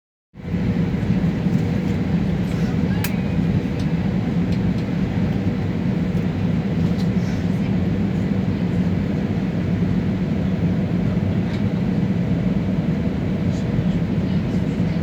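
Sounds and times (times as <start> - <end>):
airliner cabin engine rumble: 0.4 - 15.0.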